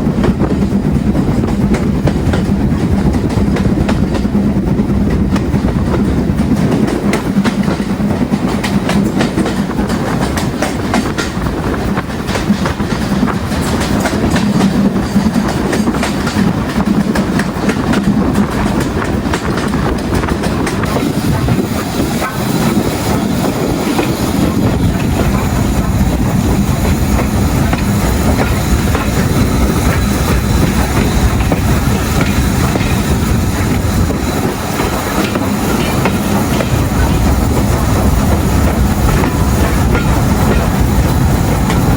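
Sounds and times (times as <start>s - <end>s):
train wheels clacking: 0.0s - 41.9s.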